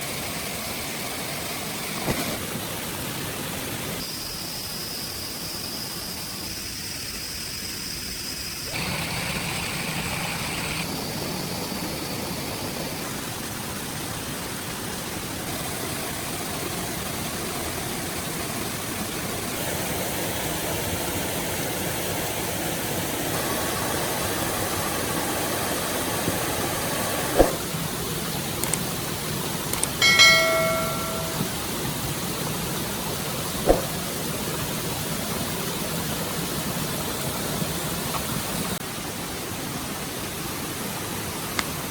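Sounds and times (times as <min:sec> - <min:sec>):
stream water rushing: 0:11.1 - 0:41.9
sharp knock: 0:30.1 - 0:31.5, 0:33.7 - 0:33.9.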